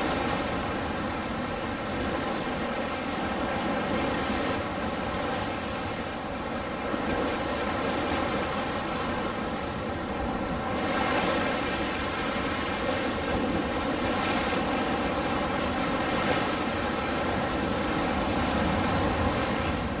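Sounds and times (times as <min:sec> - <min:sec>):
ocean waves washing on shore: 0:00.0 - 0:20.0.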